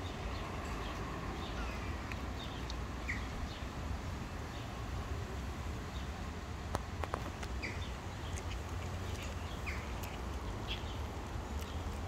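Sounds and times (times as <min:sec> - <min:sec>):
small birds chirping: 0:00.0 - 0:03.7, 0:07.4 - 0:12.0.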